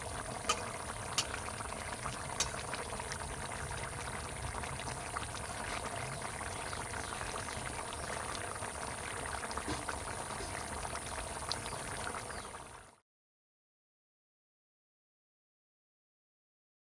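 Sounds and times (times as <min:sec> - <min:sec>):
curry bubbling in a pot: 0:00.0 - 0:13.0.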